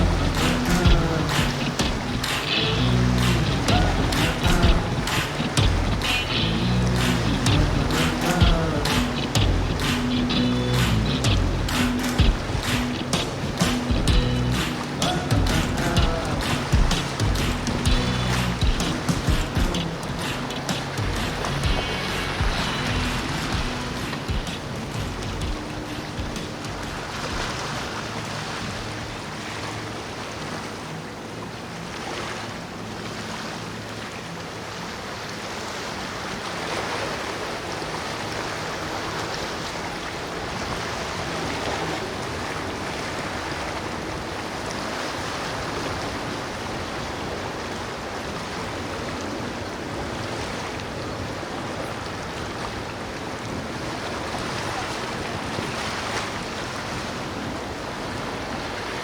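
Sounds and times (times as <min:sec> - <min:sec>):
low boat engine hum: 0:00.0 - 0:35.3
rushing water: 0:00.0 - 0:59.0
wind: 0:00.0 - 0:59.0.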